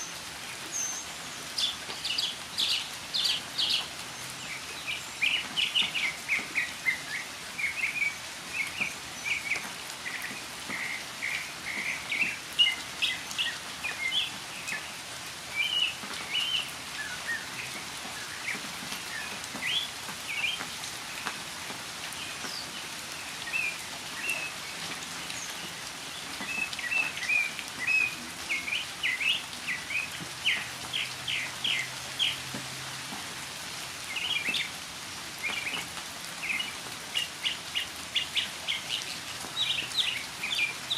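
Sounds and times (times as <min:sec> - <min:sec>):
falling rain hiss: 0:00.0 - 0:40.9
bird chirping song: 0:00.7 - 0:14.8, 0:36.4 - 0:40.9.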